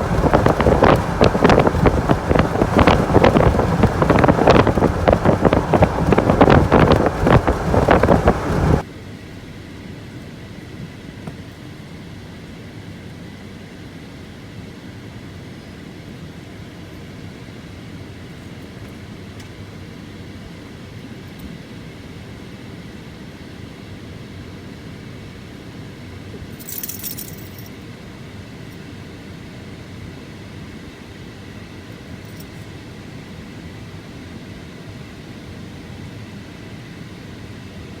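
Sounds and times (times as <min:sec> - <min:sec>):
vehicle rumbling: 0:00.0 - 0:08.8.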